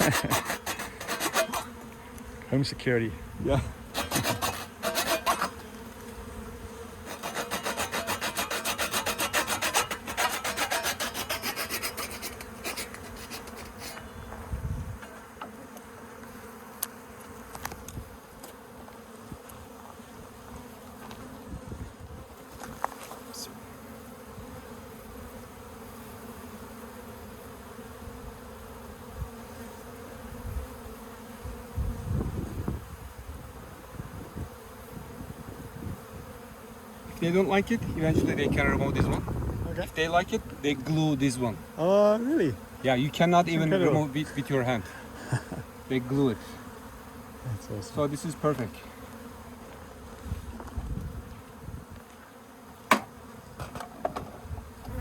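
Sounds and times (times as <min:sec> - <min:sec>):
hand tool cutting wood: 0:00.0 - 0:01.8, 0:03.9 - 0:05.7, 0:07.0 - 0:14.1
bees buzzing: 0:00.0 - 0:55.0.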